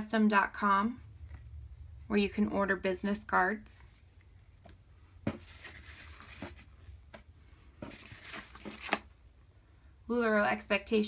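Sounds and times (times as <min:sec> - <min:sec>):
paper rustling: 0:05.2 - 0:06.9, 0:07.8 - 0:09.1.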